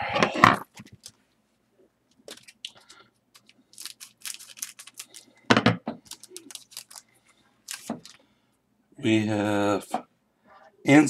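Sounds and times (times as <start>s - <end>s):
card pack wrapper tearing and crinkling: 0.7s - 1.2s, 2.2s - 5.4s, 6.0s - 8.2s.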